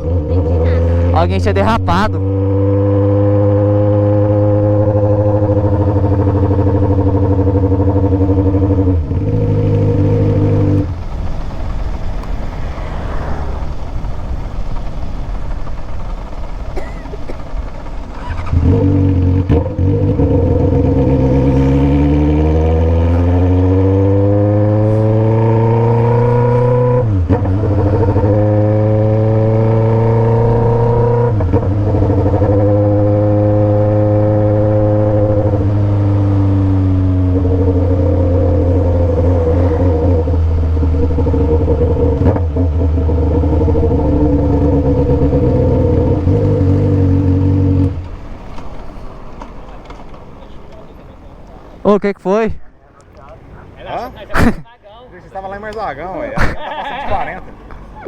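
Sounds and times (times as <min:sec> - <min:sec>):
motorcycle engine accelerating: 0:00.0 - 0:52.0
gear changes: 0:00.0 - 0:58.0.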